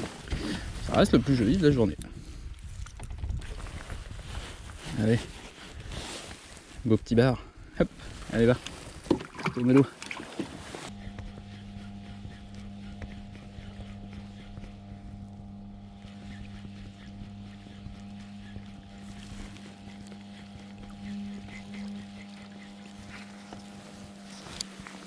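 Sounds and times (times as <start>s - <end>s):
motor humming: 7.8s - 25.0s.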